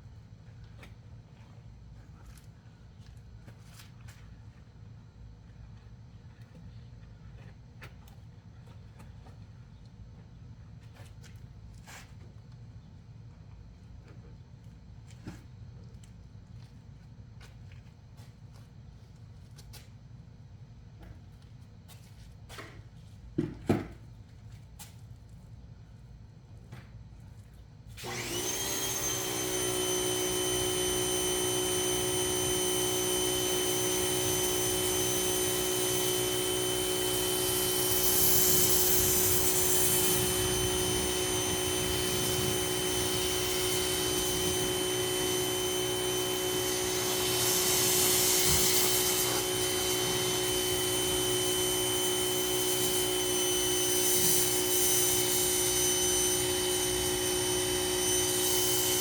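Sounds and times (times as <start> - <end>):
pressure washer motor whining: 28.0 - 59.0
hissing water spray: 28.2 - 59.0.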